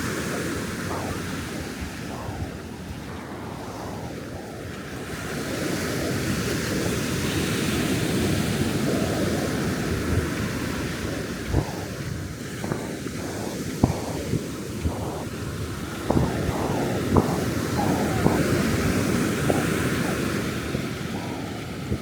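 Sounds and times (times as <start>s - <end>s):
ocean surf breaking: 0.0s - 22.0s
wind rumbling on microphone: 0.0s - 22.0s.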